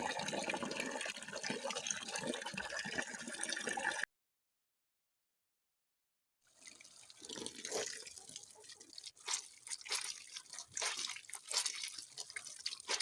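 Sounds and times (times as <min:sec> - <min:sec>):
running water: 0:06.6 - 0:13.0
water dripping and splashing: 0:06.6 - 0:13.0.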